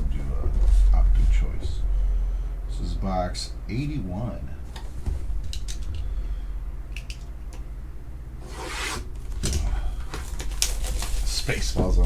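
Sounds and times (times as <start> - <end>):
wrapper tearing: 10.2 - 11.5.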